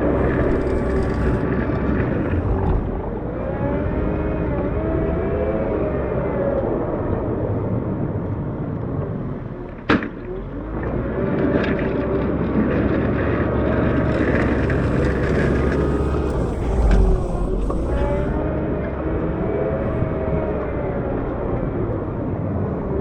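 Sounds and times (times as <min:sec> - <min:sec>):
wheel loader diesel engine: 0:00.0 - 0:05.3, 0:11.9 - 0:22.2.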